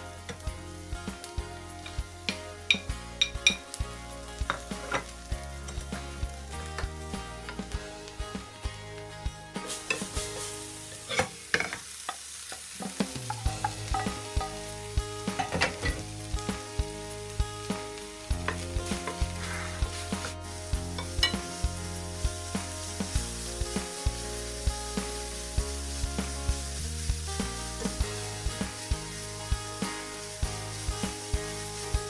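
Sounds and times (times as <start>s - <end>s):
food sizzling in frying pan: 0.0s - 32.0s.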